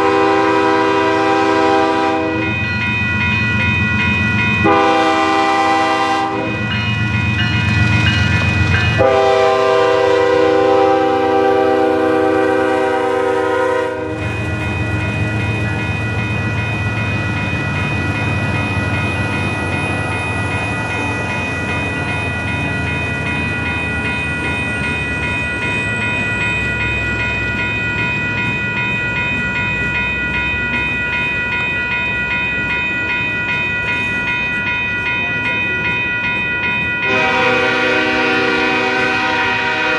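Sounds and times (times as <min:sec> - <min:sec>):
train horn blasts: 0:00.0 - 0:02.5, 0:04.6 - 0:06.7, 0:09.0 - 0:14.4, 0:37.0 - 0:39.9
steady high ringing: 0:00.0 - 0:39.9
train rumbling past: 0:00.0 - 0:39.9.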